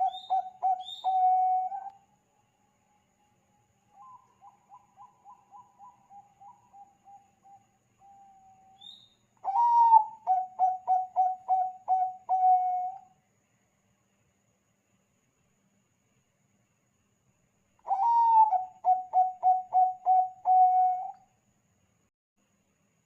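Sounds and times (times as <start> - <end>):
dove cooing: 0.0 - 1.9, 4.0 - 8.7, 9.4 - 13.0, 17.9 - 21.2.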